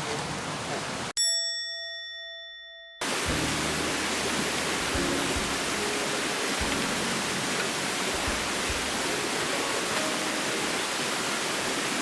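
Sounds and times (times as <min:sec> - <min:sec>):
river water flowing: 0:03.0 - 0:12.0.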